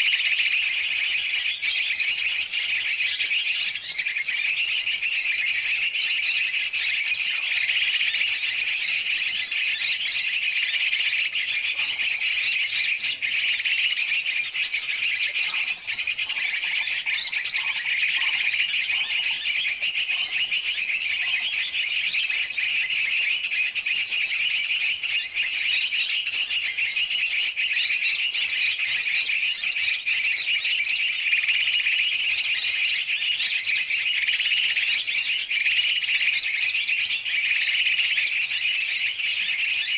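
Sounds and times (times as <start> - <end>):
chorus of small birds chirping: 0.0 - 39.9.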